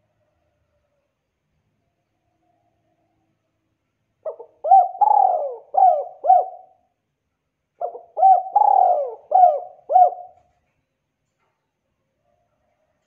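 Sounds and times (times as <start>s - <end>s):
dove cooing: 4.2s - 6.8s, 7.8s - 10.5s.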